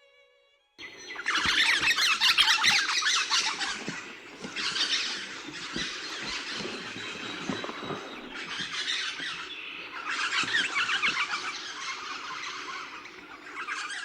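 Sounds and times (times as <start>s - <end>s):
parrots calling: 0.8s - 14.0s.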